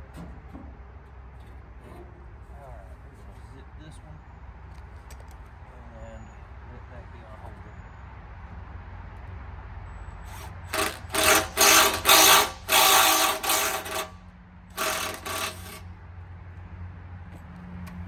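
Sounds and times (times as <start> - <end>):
small power tool bursts: 10.3 - 15.8.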